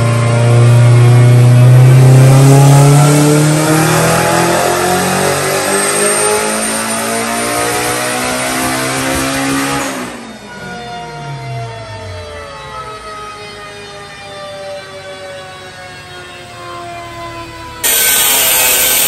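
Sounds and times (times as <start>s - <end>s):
car engine revving at full throttle: 0.0s - 10.3s, 17.8s - 19.0s.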